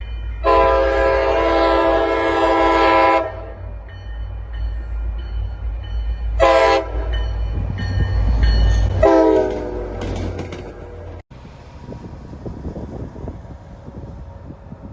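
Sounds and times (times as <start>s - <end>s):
low rumble of train: 0.0s - 14.9s
train air horn blasts: 0.4s - 3.7s, 6.4s - 7.2s, 9.0s - 10.1s.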